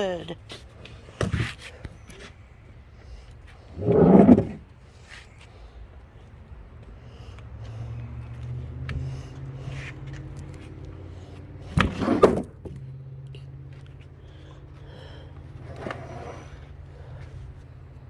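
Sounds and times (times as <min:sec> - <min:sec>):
engine idling: 0:07.0 - 0:18.0.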